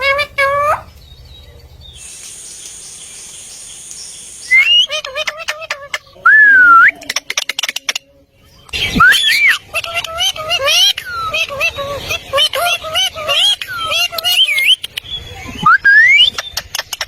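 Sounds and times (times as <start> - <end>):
parrot squawking: 0.0 - 0.9, 4.5 - 8.0, 8.7 - 17.0
steady hiss: 1.9 - 5.0
parrot whistling: 4.5 - 7.1, 8.8 - 9.6, 12.6 - 14.9, 15.6 - 16.4.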